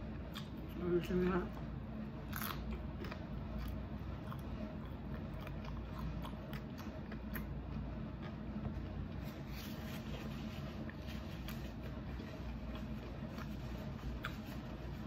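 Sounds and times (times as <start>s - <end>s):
low steady hum: 0.0s - 15.0s
person chewing crunchy food: 1.5s - 15.0s.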